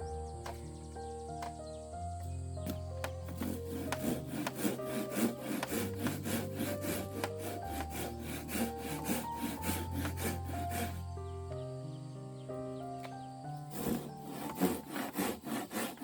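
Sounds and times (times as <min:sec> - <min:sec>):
background music: 0:00.0 - 0:16.0
handsaw cutting wood: 0:02.6 - 0:11.2, 0:13.5 - 0:16.0.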